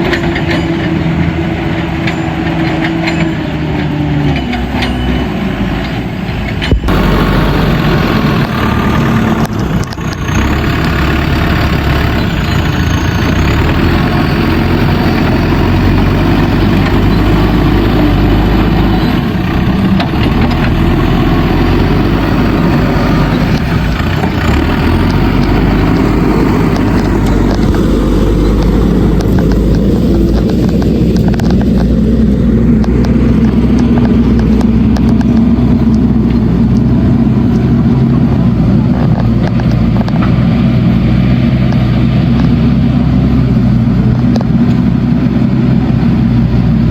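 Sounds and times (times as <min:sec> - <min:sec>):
backhoe loader diesel engine: 0:00.0 - 0:46.9
tractor engines: 0:00.0 - 0:46.9.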